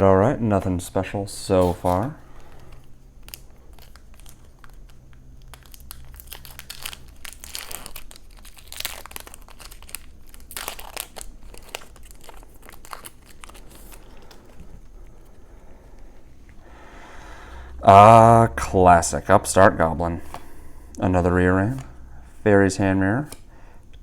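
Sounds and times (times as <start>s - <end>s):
wrapper crinkling and tearing: 1.6s - 14.9s.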